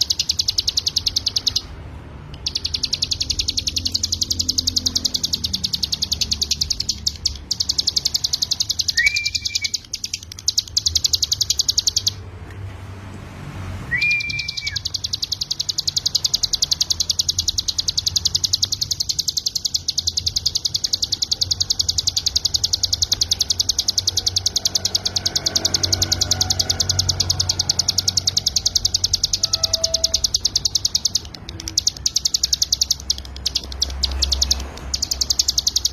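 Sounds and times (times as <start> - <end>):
bird singing high-pitched trill: 0.0 - 1.8, 2.4 - 12.2, 13.9 - 35.9
short lower whistled notes: 13.9 - 14.8.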